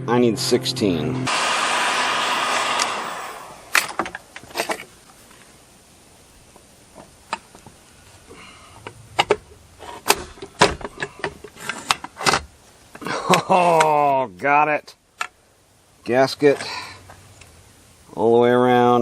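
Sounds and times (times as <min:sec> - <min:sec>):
metal parts clicking and knocking: 0:08.8 - 0:13.9.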